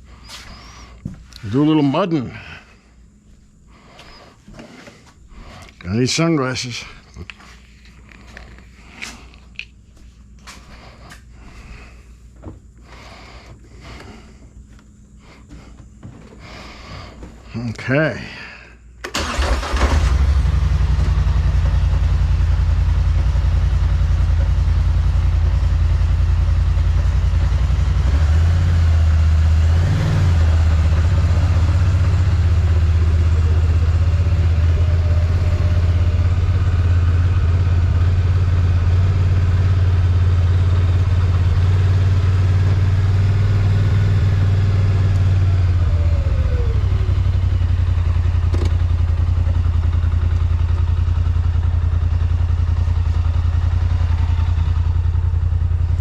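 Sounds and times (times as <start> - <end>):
atv engine running: 19.2 - 56.0.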